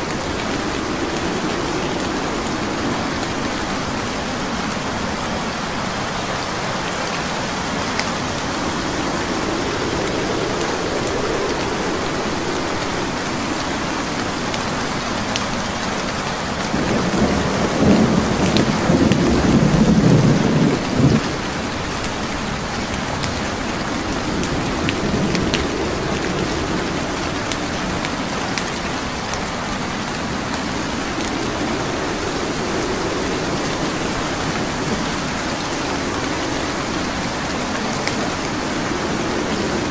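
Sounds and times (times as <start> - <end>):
wood fire crackling: 0.0 - 5.8, 6.8 - 39.9
steady rain: 0.0 - 39.9
low rumble: 7.0 - 15.3, 16.6 - 39.9.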